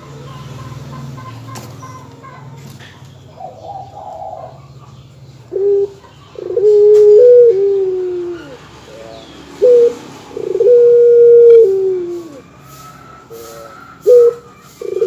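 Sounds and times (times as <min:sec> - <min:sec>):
dove cooing: 0:03.3 - 0:15.0.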